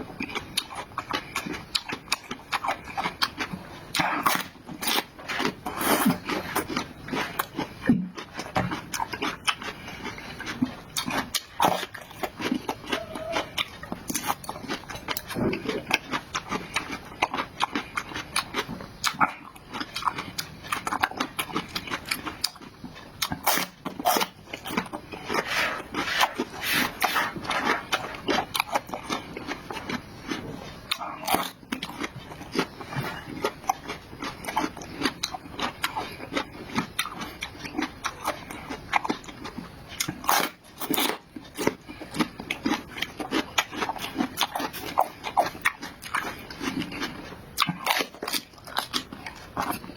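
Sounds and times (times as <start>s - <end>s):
person chewing food: 0.0s - 49.9s.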